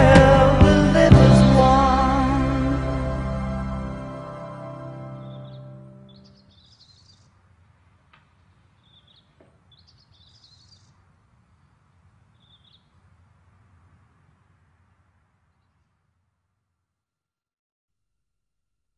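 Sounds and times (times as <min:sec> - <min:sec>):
low steady hum: 0:00.0 - 0:06.2
piano chord: 0:00.0 - 0:06.2
birds chirping: 0:01.0 - 0:13.9.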